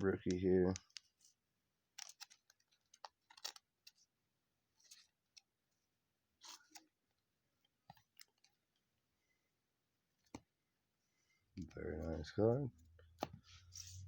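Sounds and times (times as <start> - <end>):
trading cards clicking and rustling: 0.1 - 1.3, 1.9 - 4.1, 6.4 - 7.0, 7.7 - 8.7, 10.2 - 10.6.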